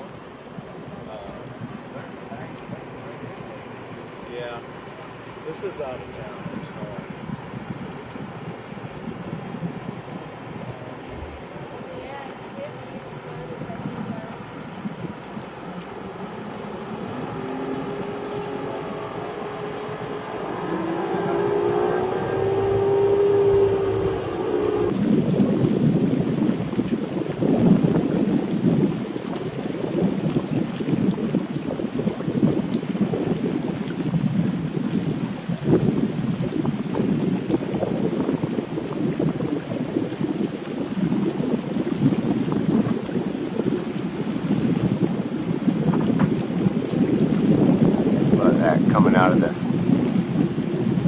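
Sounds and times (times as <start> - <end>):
wind buffeting microphone: 0.0 - 51.0
motor droning: 7.9 - 25.0.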